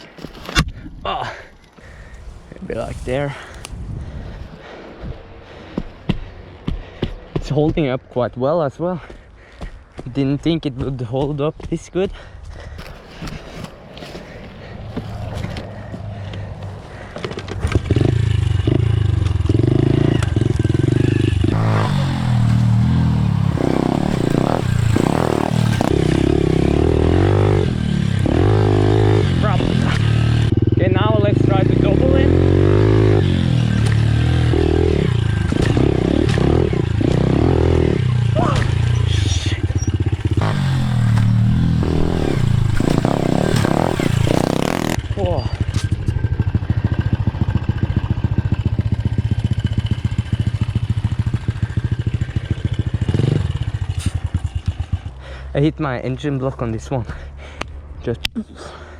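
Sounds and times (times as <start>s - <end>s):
pit bike engine revving: 14.2s - 55.2s.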